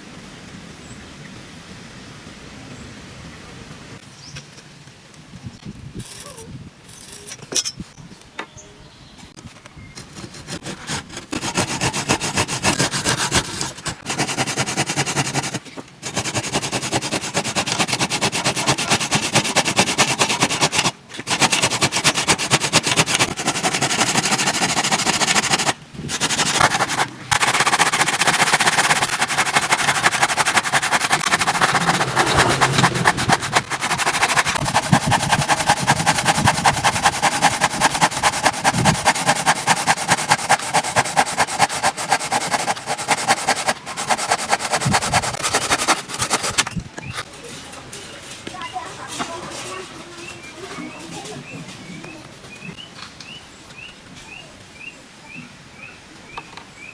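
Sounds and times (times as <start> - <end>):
saw blade sharpening rasp: 10.7 - 46.6.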